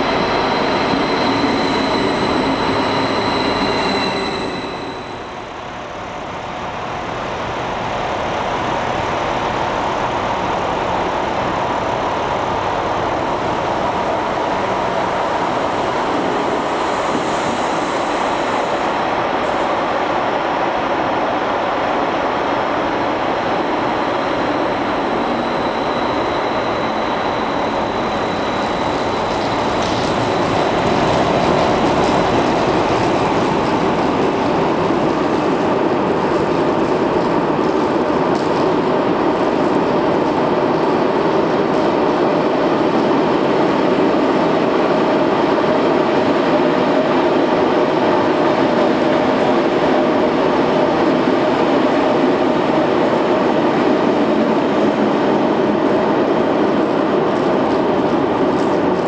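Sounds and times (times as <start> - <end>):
electric trains running: 22.8 - 44.6.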